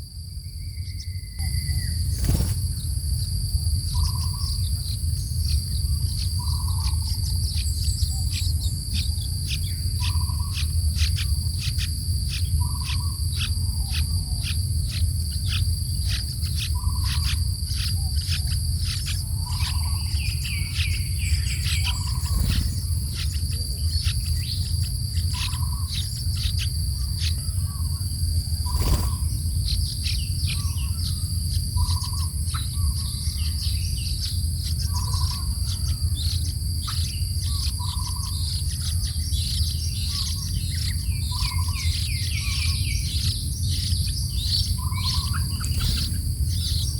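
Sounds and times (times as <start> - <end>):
continuous low rumble: 0.0 - 46.9
high insect drone: 0.0 - 46.9
lower bird call: 0.2 - 3.0, 3.8 - 46.9
quick high bird chirps: 19.4 - 27.8, 28.5 - 33.2.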